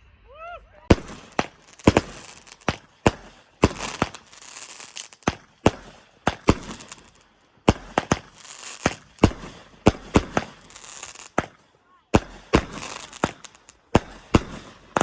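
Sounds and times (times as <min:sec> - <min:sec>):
crackling hiss: 0:00.8 - 0:15.0
fireworks bangs: 0:00.8 - 0:15.0.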